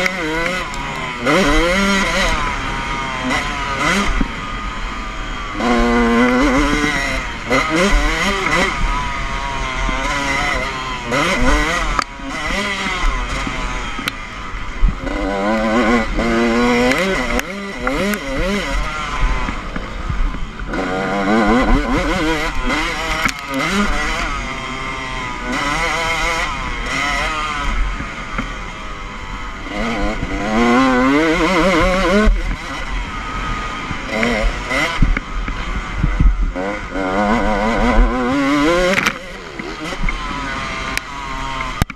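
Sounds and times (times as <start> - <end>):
motocross bike engine revving: 0.0 - 41.9.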